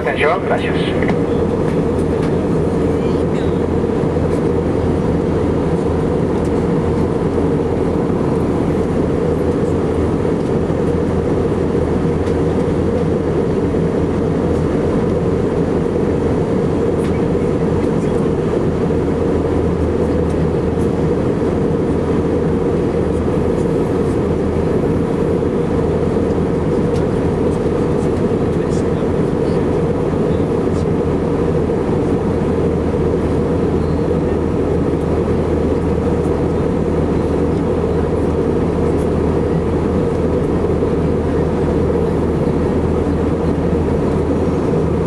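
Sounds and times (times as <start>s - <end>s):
faint steady hum: 0.0s - 1.5s
aircraft cabin engine roar: 0.0s - 45.0s.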